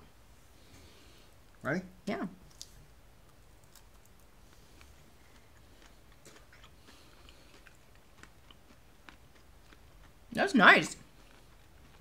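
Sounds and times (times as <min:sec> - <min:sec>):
chewing with small crunches: 0:02.4 - 0:12.0.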